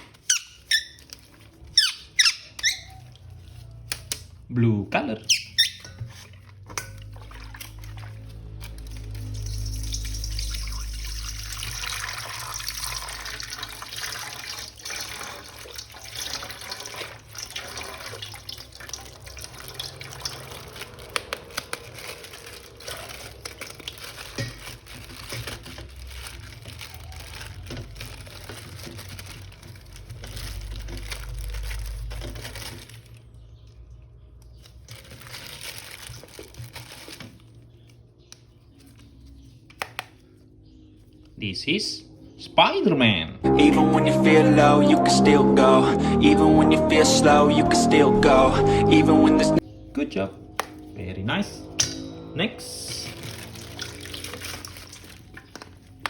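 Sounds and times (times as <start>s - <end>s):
water running and splashing: 6.3s - 31.7s, 52.9s - 56.0s.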